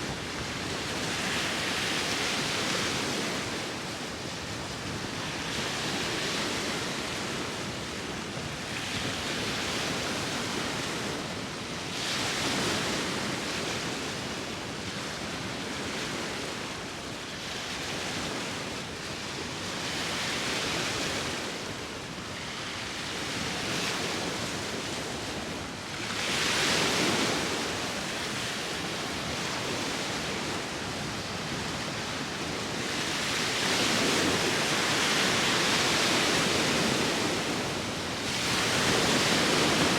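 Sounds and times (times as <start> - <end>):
wind: 0.0 - 39.9
sea waves breaking: 23.4 - 39.9.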